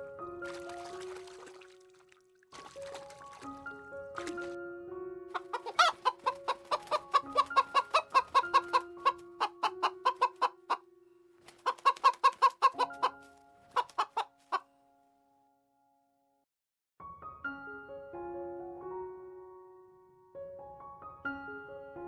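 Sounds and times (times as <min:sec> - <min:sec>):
background music with held notes: 0:00.0 - 0:16.3, 0:17.0 - 0:22.0
hens clucking: 0:05.4 - 0:10.8, 0:11.5 - 0:14.6.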